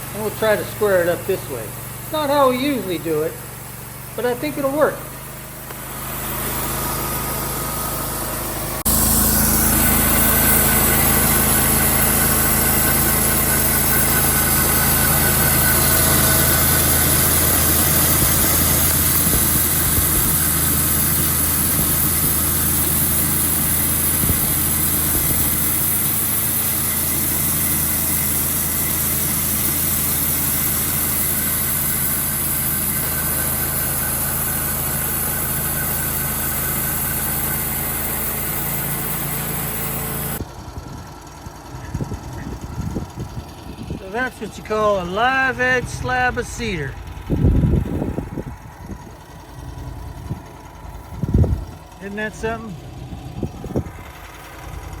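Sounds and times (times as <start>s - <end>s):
saw blade cutting log: 0.0s - 40.4s, 44.1s - 47.0s
sawmill engine running: 0.0s - 55.0s.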